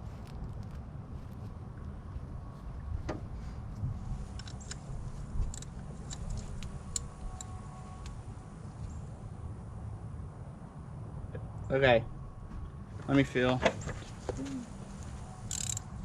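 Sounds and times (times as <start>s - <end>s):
steady low rumble: 0.0s - 16.0s
metallic clicks of hand tools: 15.5s - 15.8s.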